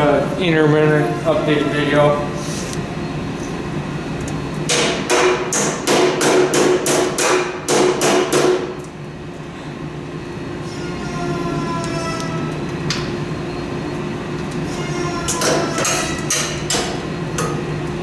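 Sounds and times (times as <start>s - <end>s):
steady hum: 0.0s - 18.0s
hammer strikes on metal: 4.7s - 8.8s, 15.3s - 17.6s.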